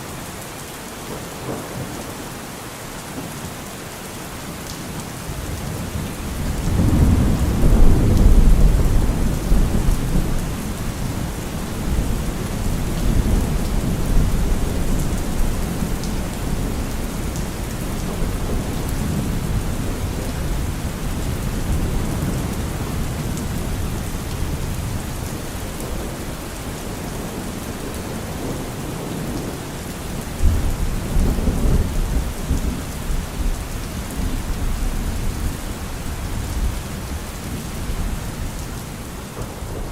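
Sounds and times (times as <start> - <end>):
heavy rain: 0.0 - 39.9
rolling thunder: 6.0 - 26.2.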